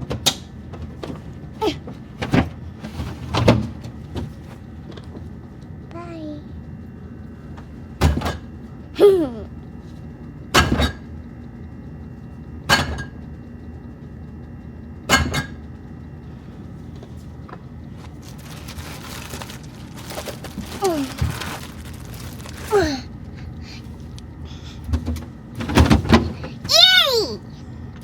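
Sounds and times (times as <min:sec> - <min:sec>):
rustling: 0:18.0 - 0:23.1
items knocking and clinking: 0:18.2 - 0:22.7.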